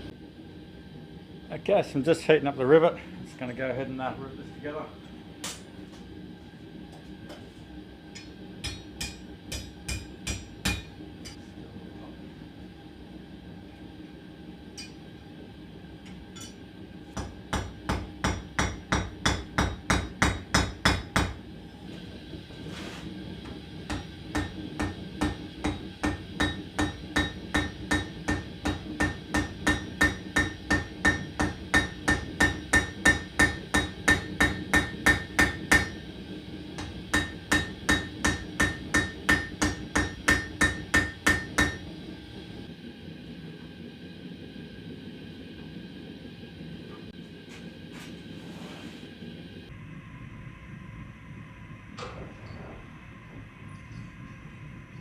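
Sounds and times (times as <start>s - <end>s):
hammer striking hot rivet: 8.2s - 11.4s, 17.2s - 21.4s, 23.5s - 36.0s, 36.8s - 41.8s.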